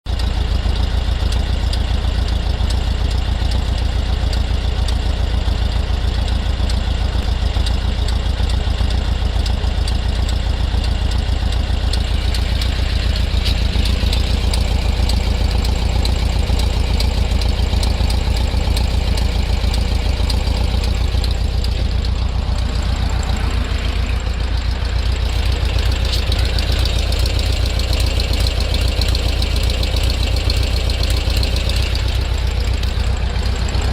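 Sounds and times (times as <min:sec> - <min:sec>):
car engine idling: 0:00.0 - 0:33.9
fast popping ticking noise: 0:00.1 - 0:33.9.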